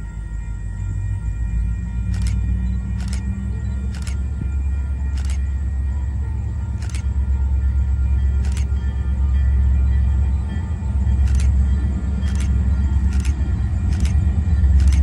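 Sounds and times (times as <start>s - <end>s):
train rumbling past: 0.0s - 15.0s
sharp clicks: 2.1s - 2.4s, 3.0s - 3.3s, 3.9s - 4.2s, 5.2s - 5.4s, 6.8s - 7.1s, 8.4s - 8.7s, 11.3s - 11.5s, 12.3s - 14.2s, 14.8s - 15.0s.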